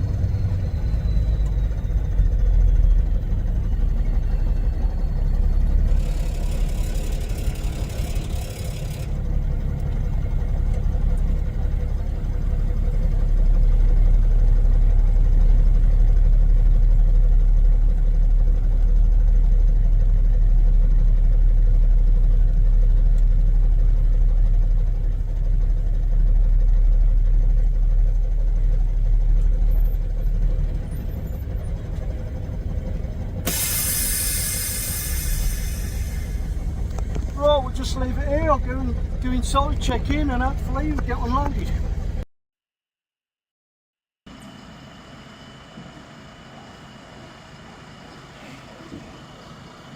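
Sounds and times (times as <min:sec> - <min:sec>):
truck diesel engine rumbling: 0:00.0 - 0:42.2, 0:45.8 - 0:49.9
high hiss: 0:33.5 - 0:36.7.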